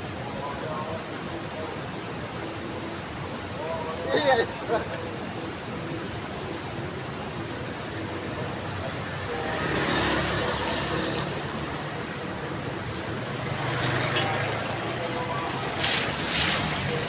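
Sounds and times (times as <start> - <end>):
heavy rain falling: 7.7 - 17.0.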